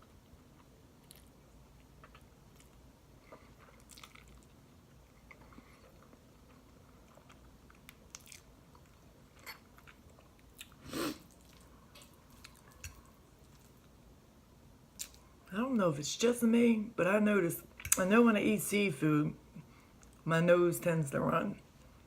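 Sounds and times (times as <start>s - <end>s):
person chewing food: 0.1s - 14.0s, 14.9s - 15.3s.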